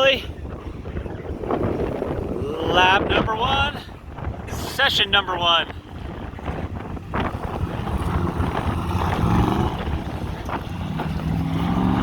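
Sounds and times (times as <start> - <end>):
wind noise on microphone: 0.0 - 12.0
truck engine accelerating: 5.8 - 12.0.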